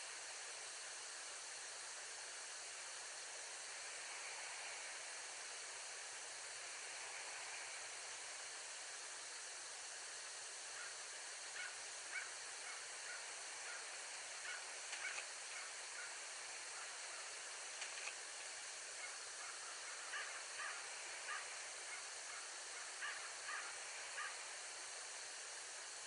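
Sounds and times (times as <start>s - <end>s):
microphone hiss: 0.0s - 26.0s.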